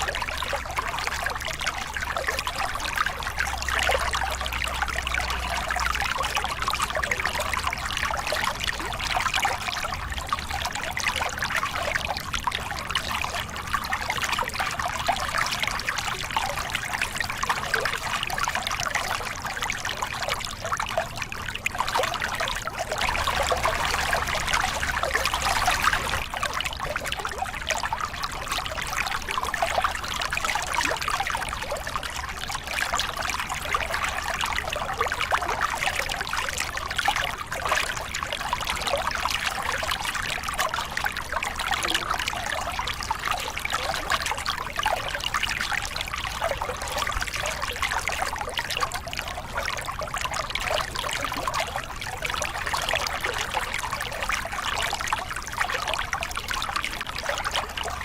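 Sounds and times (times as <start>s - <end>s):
water splashing over rocks: 17.2s - 58.0s.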